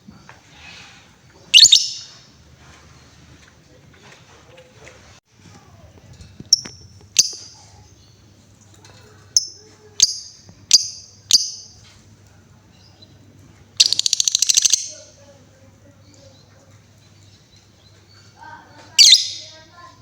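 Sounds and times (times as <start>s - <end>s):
bird sharp high chirps: 1.5s - 2.3s, 6.5s - 7.6s, 9.4s - 11.8s, 13.8s - 15.1s, 19.0s - 19.7s
bird rattling chatter: 13.8s - 15.2s.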